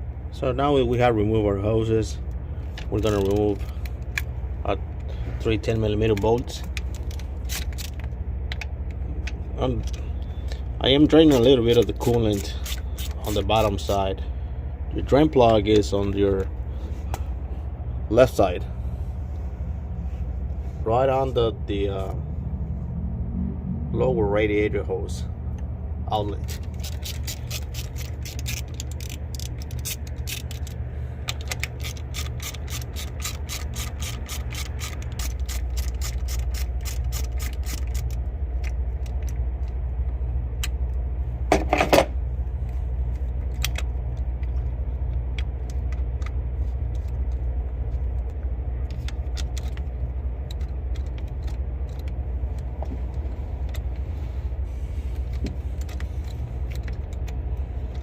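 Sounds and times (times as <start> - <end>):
ratchet wrench clicking: 9.8 - 14.0, 26.3 - 39.4
low rumble: 16.4 - 32.1.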